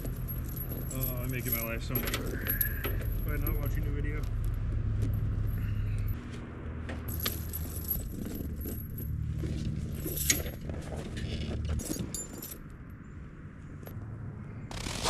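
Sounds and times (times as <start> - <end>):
chain links jingling: 0.0 - 6.1, 7.1 - 12.7
low steady rumble: 0.0 - 15.0.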